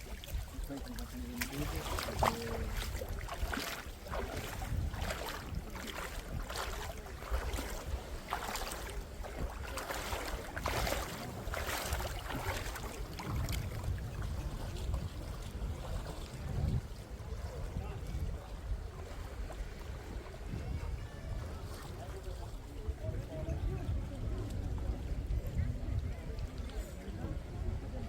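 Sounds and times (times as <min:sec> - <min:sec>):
seawater swishing on beach: 0:00.0 - 0:23.0
wind rumbling on microphone: 0:00.0 - 0:28.0.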